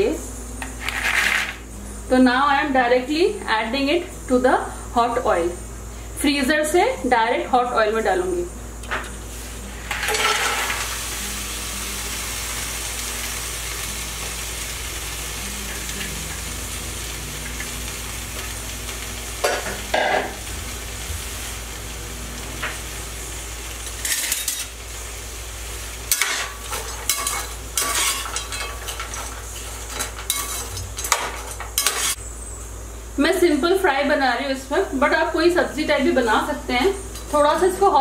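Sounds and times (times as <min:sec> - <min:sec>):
okra sizzling in hot oil: 0:07.0 - 0:38.0
slotted spoon scraping a pan: 0:26.1 - 0:32.2.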